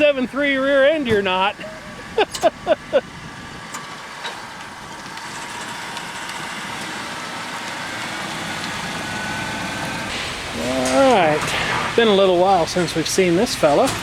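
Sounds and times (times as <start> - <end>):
car engine accelerating: 1.0 - 13.9.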